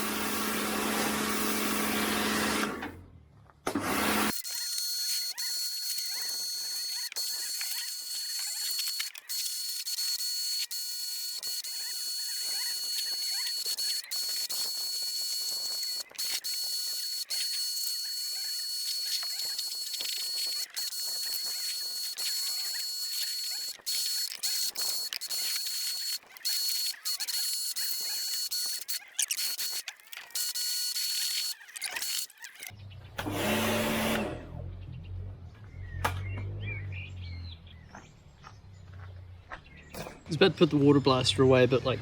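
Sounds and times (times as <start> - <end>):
pressure washer spraying: 0.0 - 2.7.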